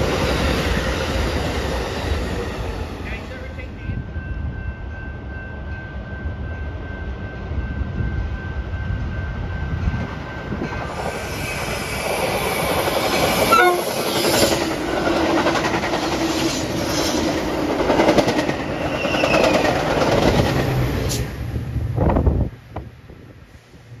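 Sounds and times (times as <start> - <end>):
train rumbling past: 0.0 - 24.0
train wheels clattering on rails: 8.6 - 21.3
train horn note: 13.5 - 14.0.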